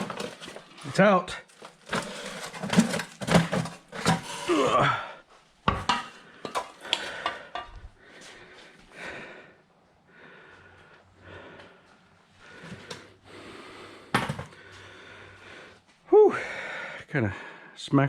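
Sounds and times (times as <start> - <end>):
metal clanks of tools: 1.9 - 4.5, 5.7 - 7.8
man breathing hard: 5.9 - 17.8.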